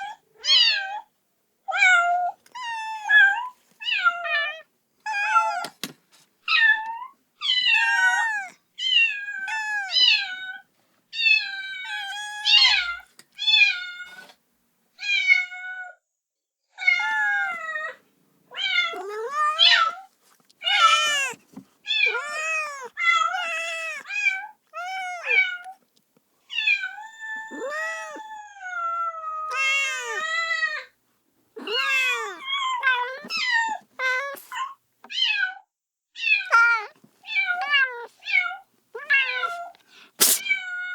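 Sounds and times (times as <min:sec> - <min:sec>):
kitten meowing: 0:07.5 - 0:10.3, 0:18.6 - 0:20.0, 0:20.6 - 0:25.7, 0:26.5 - 0:28.3, 0:29.5 - 0:30.4, 0:31.6 - 0:34.7, 0:36.4 - 0:40.6.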